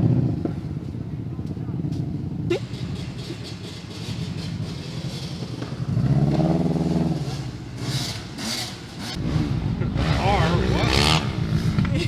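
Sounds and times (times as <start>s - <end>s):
car engine droning and revving: 2.6s - 12.0s.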